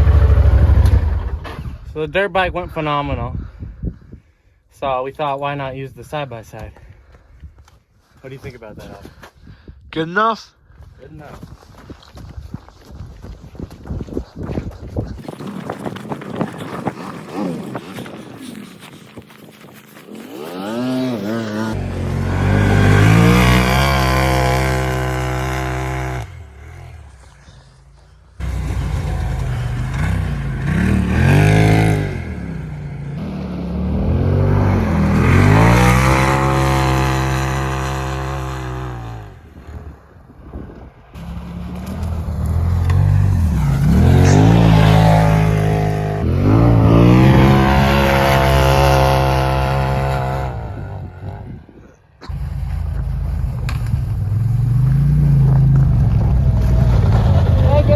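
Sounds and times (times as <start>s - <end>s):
engine revving: 0.0s - 1.5s, 20.4s - 27.4s, 28.4s - 39.4s, 41.2s - 51.4s.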